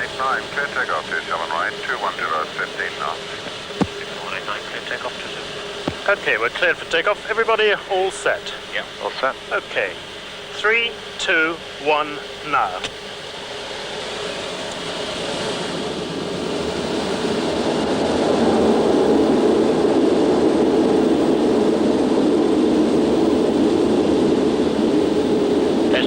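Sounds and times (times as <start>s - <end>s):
jet engines at takeoff power: 0.0s - 26.0s.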